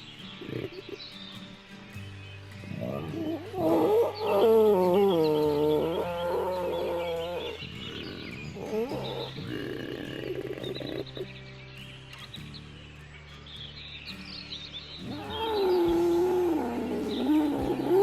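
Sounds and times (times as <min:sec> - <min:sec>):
animal call wavering: 0:02.7 - 0:11.3, 0:15.0 - 0:18.0.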